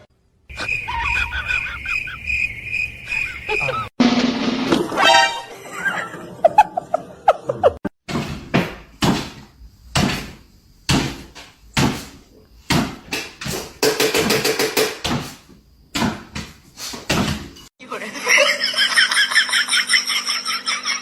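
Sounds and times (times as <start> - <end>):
knocks or thumps: 8.1 - 17.6.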